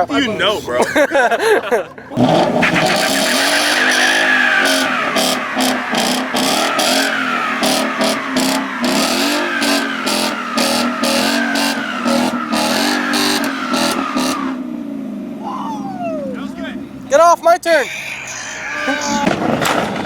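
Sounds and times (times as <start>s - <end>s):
car engine revving: 2.2s - 17.2s, 19.1s - 20.0s
tires squealing: 2.2s - 20.0s.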